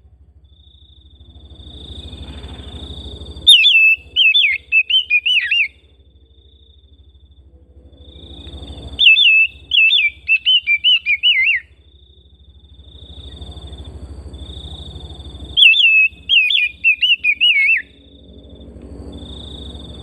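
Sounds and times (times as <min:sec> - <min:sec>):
low hum: 0:00.0 - 0:20.0
bird singing warbling whistles: 0:03.4 - 0:05.8, 0:08.1 - 0:11.8, 0:15.5 - 0:18.0.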